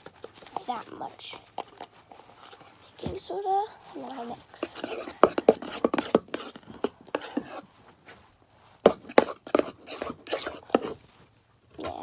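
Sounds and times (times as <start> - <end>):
spoon scraping a bowl: 4.6 - 7.7, 8.8 - 11.0.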